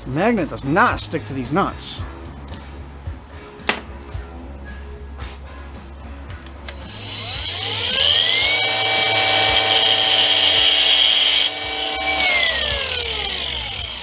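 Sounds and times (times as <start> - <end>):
grinder motor whine: 6.7 - 14.0.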